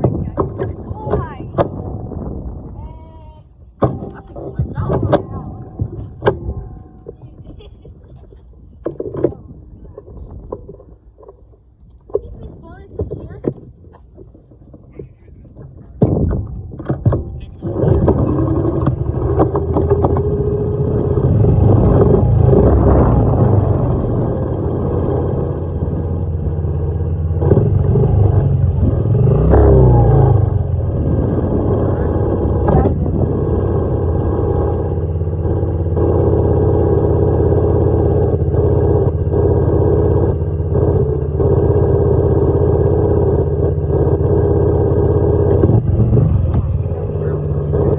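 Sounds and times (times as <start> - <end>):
knocks: 3.8 - 7.2, 15.9 - 20.4
dirt bike engine revving: 16.8 - 47.9.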